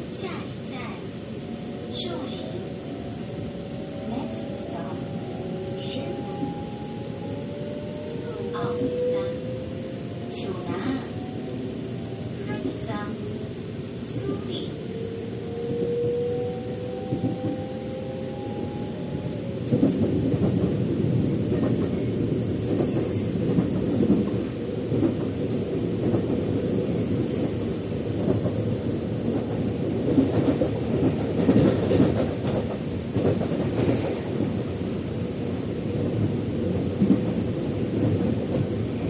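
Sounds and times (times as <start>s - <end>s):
metro train whine: 0.0s - 39.0s
train wheels clattering on rails: 17.0s - 17.7s, 19.7s - 39.0s
train knocks: 17.0s - 17.8s, 19.7s - 26.7s, 29.2s - 34.6s.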